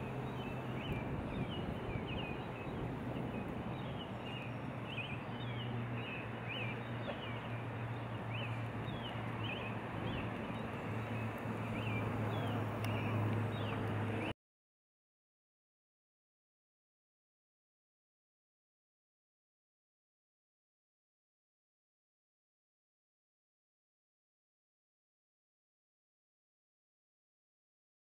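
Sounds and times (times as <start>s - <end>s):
birds chirping: 0.0s - 14.3s.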